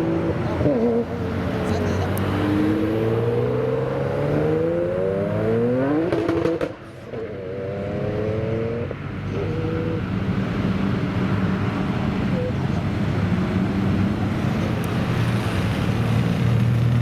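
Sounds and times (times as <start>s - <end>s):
car engine accelerating hard: 0.0s - 10.2s.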